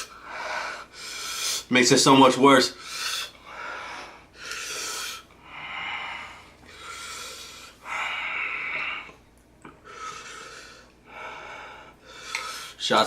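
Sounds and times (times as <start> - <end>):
person breathing hard through mouth: 0.0 - 1.7, 2.8 - 9.2, 9.8 - 12.8.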